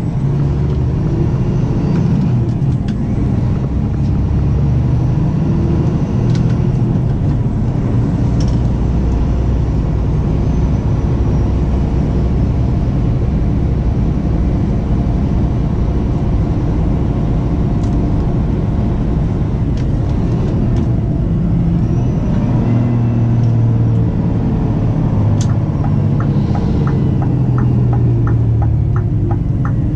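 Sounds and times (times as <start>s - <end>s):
truck diesel engine rumbling: 0.0s - 29.9s
regular ticking: 25.4s - 29.9s.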